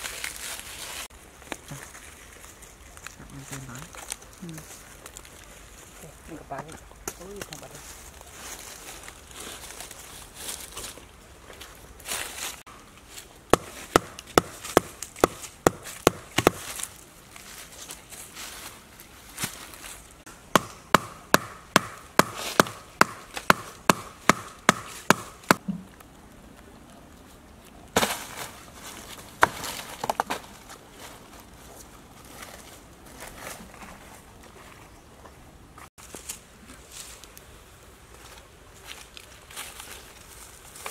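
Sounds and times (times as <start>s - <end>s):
firewood rustling scrape: 0.0s - 20.3s, 24.8s - 35.0s, 35.8s - 40.9s
sharp knocks on wood: 13.5s - 16.6s, 20.5s - 25.6s.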